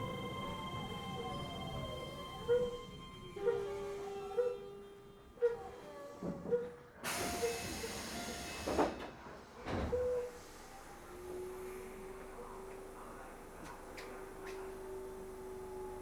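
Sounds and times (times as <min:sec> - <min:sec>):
train door chime: 0:00.0 - 0:05.1.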